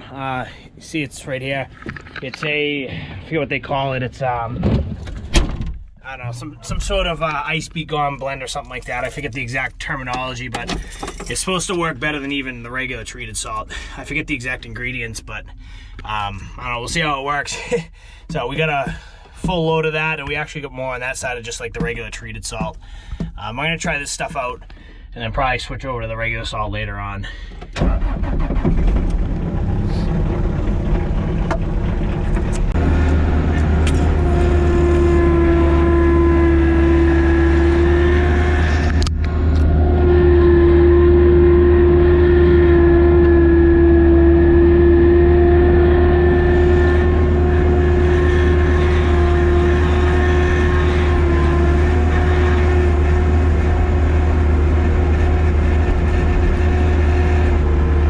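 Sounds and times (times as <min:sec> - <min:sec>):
truck engine drone with whine: 0:27.3 - 0:58.0.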